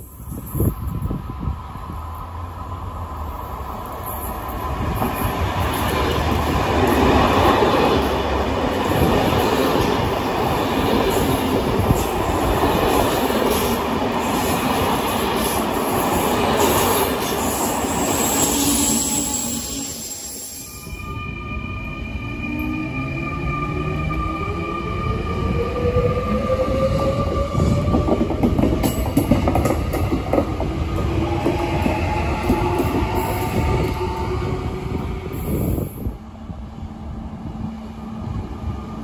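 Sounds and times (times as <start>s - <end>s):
train passing with wheel rumble: 0.0s - 39.0s.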